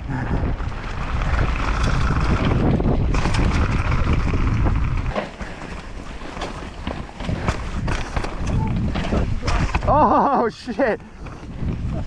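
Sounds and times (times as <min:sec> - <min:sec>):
wind on microphone: 0:00.0 - 0:05.2, 0:06.8 - 0:10.2, 0:11.0 - 0:12.0
tyres rumbling on dirt: 0:00.0 - 0:12.0
bike clattering: 0:00.3 - 0:12.0.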